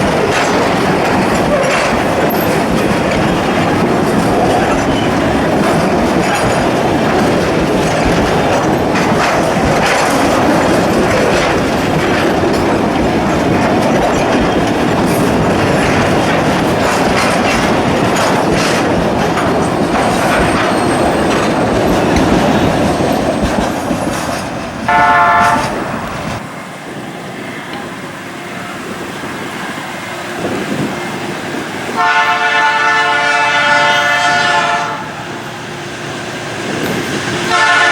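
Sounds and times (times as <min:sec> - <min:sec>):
wagon wheels clattering on rails: 0:00.0 - 0:26.4
freight train rumbling: 0:00.0 - 0:37.9
locomotive horn blast: 0:24.9 - 0:26.1, 0:31.9 - 0:35.6, 0:37.4 - 0:37.9.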